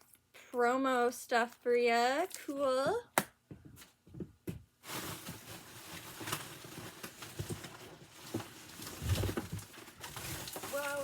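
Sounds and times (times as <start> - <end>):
packaging rustling: 4.8 - 11.0.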